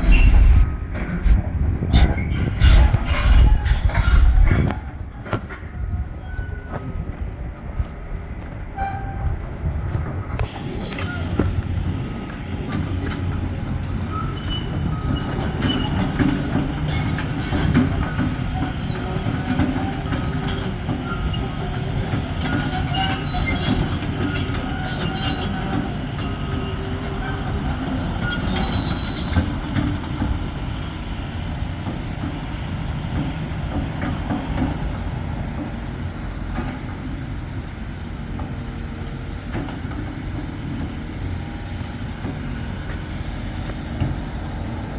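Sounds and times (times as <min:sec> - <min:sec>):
diesel engine running: 0:00.0 - 0:06.1, 0:07.0 - 0:44.9
track links squealing and clanking: 0:00.0 - 0:07.3, 0:08.8 - 0:35.7.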